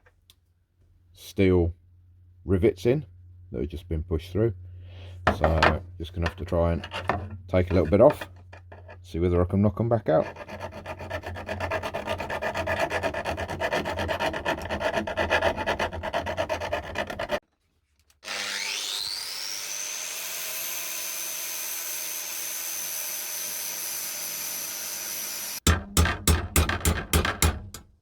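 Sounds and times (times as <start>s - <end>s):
file rasping on metal: 6.7s - 9.0s, 10.1s - 17.4s
small power tool whining: 18.2s - 25.6s.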